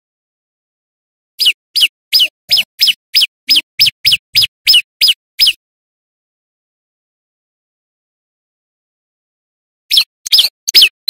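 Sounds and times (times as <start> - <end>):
bird calling sharp falling notes: 1.4 - 5.6.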